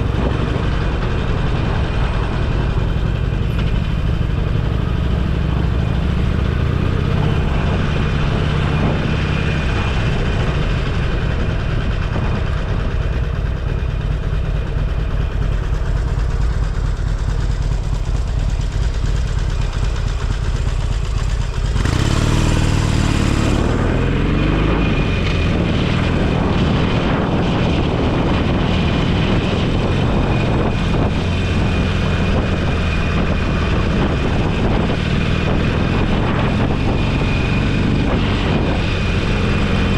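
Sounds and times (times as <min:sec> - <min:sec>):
motorcycle engine accelerating: 0:00.0 - 0:39.9
road and wind noise: 0:00.0 - 0:39.9.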